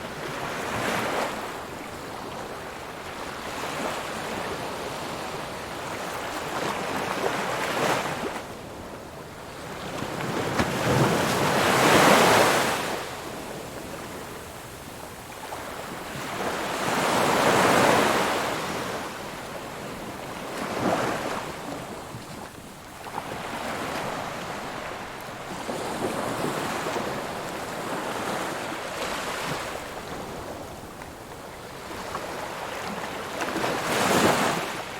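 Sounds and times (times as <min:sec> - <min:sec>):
ocean waves crashing on shore: 0:09.7 - 0:22.1.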